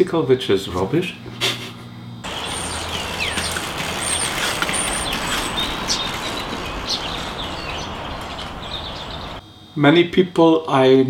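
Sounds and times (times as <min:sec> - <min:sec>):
outdoor background rush: 0:01.3 - 0:09.4
small birds chirping: 0:02.2 - 0:09.4.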